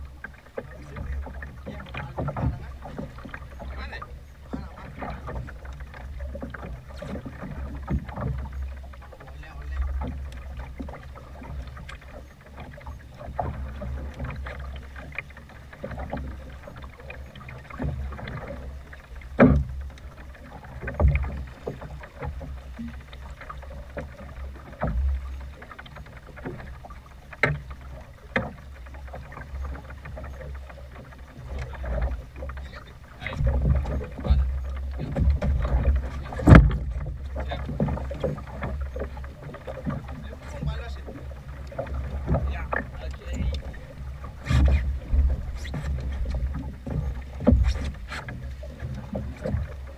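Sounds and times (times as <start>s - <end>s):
low rumble of wind and water: 0.0s - 49.9s
waves slapping hull: 0.0s - 49.9s.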